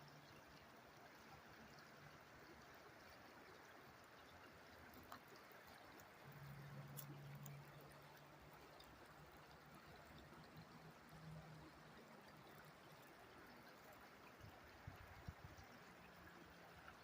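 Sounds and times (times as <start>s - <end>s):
river water flowing: 0.0s - 17.0s.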